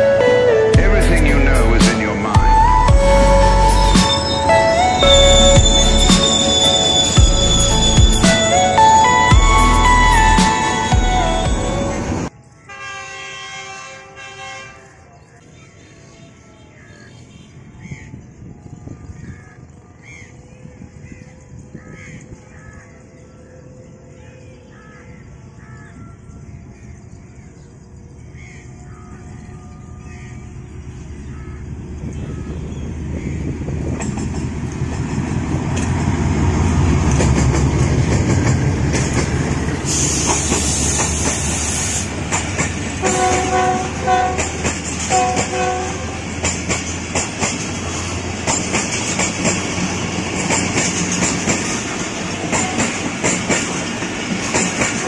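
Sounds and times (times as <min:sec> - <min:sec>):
diesel locomotive engine: 0:00.0 - 0:24.6, 0:26.6 - 0:55.0
train horn notes: 0:03.0 - 0:15.0, 0:43.0 - 0:46.5
crows cawing: 0:19.3 - 0:20.4, 0:21.1 - 0:23.0, 0:24.7 - 0:26.1, 0:28.4 - 0:29.2
wheels clacking over rail joints: 0:33.4 - 0:55.0.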